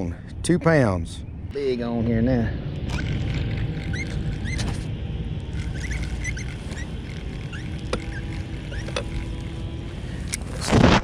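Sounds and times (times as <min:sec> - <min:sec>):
wind rumble on microphone: 0:01.5 - 0:11.0
small birds chirping: 0:02.8 - 0:04.9, 0:05.5 - 0:09.8.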